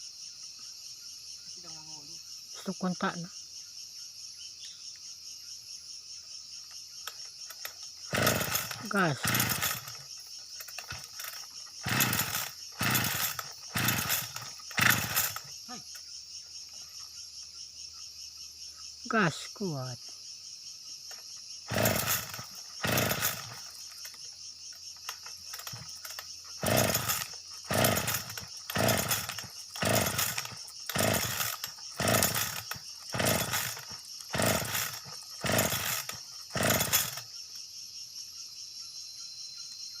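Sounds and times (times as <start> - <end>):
crickets chirping: 0.0 - 40.0
engine revving in bursts: 8.1 - 10.0, 10.9 - 15.5, 21.7 - 23.7, 25.5 - 37.2.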